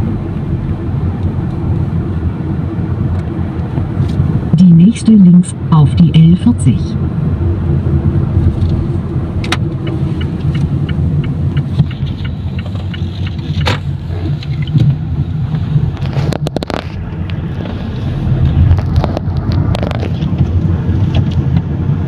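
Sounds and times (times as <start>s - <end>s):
car engine and road rumble: 0.0s - 22.0s
turn signal ticking: 8.6s - 21.7s.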